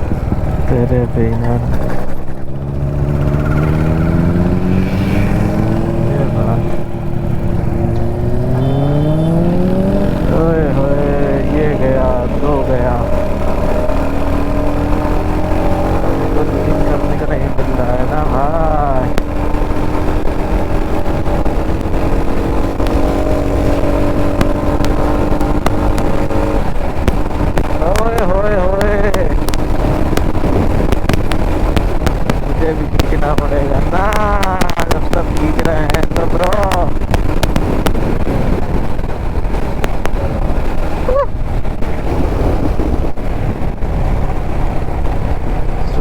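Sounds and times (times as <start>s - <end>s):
motorcycle engine cruising: 0.0s - 46.0s
wind rushing over microphone: 0.0s - 46.0s
rising and falling tone: 2.4s - 17.3s.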